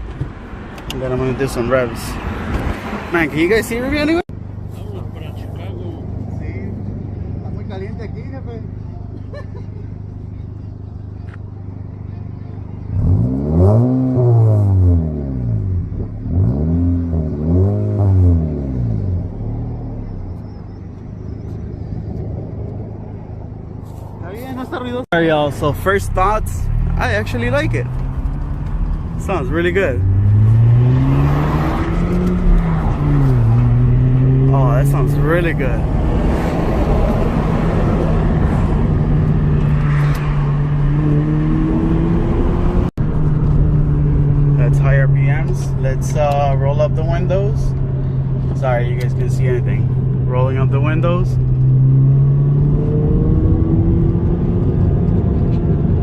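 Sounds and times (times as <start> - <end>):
straight-piped car exhaust revving: 12.9 - 20.2, 25.9 - 55.1.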